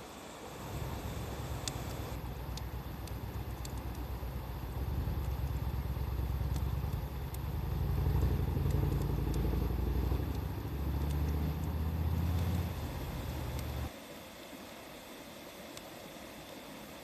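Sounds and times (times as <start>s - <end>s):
wood fire crackling: 0.1s - 13.9s
low engine-like rumble: 0.4s - 13.9s.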